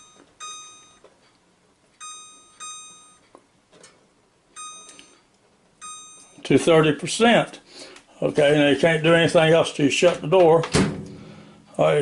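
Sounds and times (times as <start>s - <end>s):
microwave keypad beeps: 0.0s - 1.1s, 2.0s - 3.3s, 4.6s - 5.2s, 5.8s - 6.4s.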